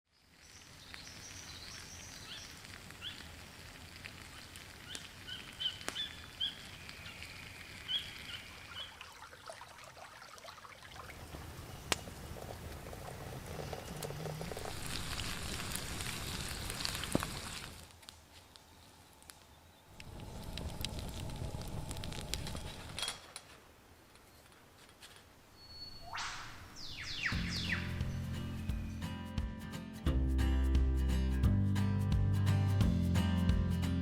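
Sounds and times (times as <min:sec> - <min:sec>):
sharp cracks: 0:02.5 - 0:06.4
birds chirping: 0:04.9 - 0:09.1, 0:25.5 - 0:29.3.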